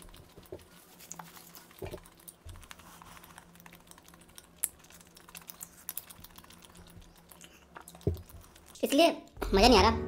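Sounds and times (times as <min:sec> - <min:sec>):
chewing crispy fried chicken: 0:00.0 - 0:08.8.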